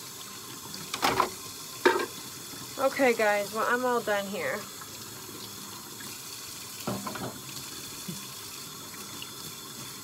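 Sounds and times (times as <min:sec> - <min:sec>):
faucet running into a sink: 0:00.0 - 0:10.0
dishes knocking: 0:01.0 - 0:02.2, 0:06.8 - 0:07.4.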